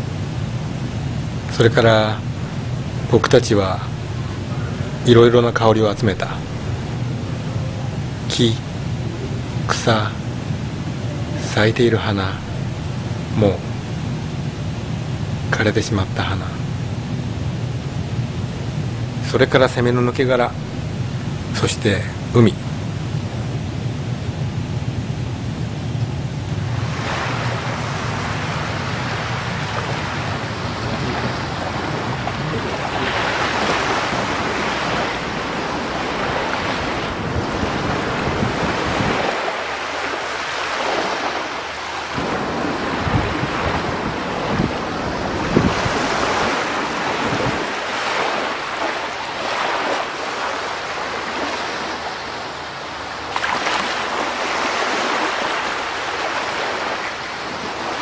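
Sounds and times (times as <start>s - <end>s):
sea waves washing ashore: 0.0s - 58.0s
wind rumbling on microphone: 20.5s - 58.0s.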